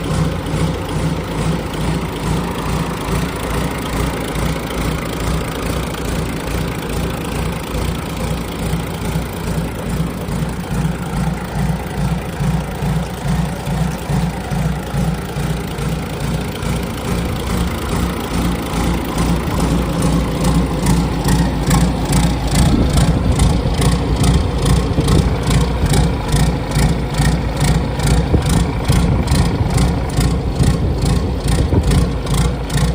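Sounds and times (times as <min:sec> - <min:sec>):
marine diesel engine idling: 0:00.0 - 0:32.9.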